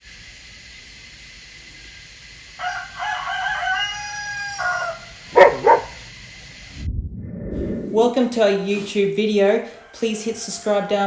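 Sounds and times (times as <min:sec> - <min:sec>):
rooster crowing: 0:02.6 - 0:06.1, 0:08.5 - 0:11.0
dog barking: 0:05.3 - 0:06.1.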